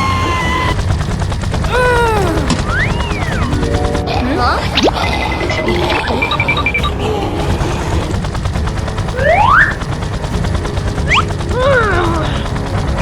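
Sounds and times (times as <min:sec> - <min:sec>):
low rattling rumble: 0:00.0 - 0:13.0
rising whistle-like glides: 0:09.2 - 0:09.9.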